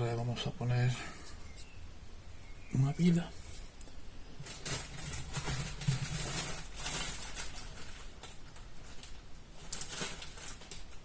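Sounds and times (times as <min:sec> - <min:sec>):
small parts clicking and rustling: 0:04.4 - 0:11.0.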